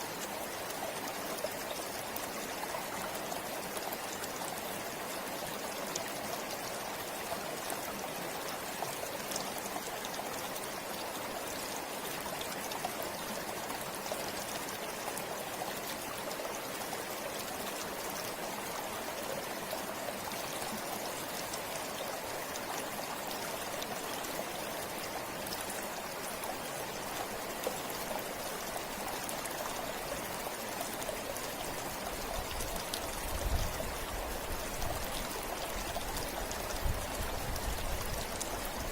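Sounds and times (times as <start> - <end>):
river flowing over rocks: 0.0 - 38.9.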